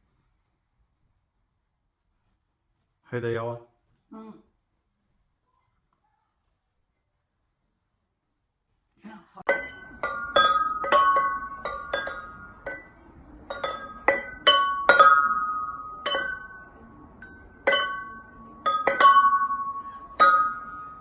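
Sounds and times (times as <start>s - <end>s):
glass objects clinking: 9.5s - 21.0s.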